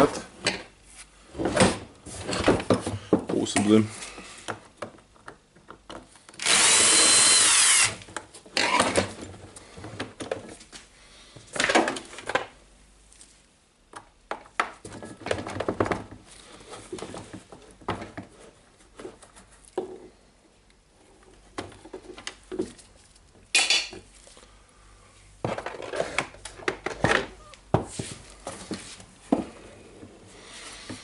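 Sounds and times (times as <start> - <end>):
cordless drill whining: 6.4 - 8.0.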